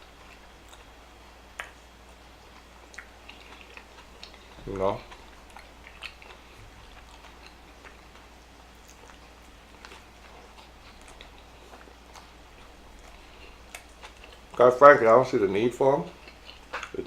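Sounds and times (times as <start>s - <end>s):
mouth clicks and smacks chewing: 1.5s - 1.8s, 2.4s - 14.6s, 16.1s - 17.0s.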